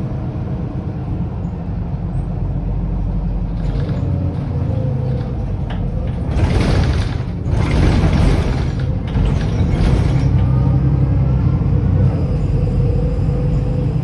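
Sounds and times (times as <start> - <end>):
bus diesel engine rumbling: 0.0 - 14.0.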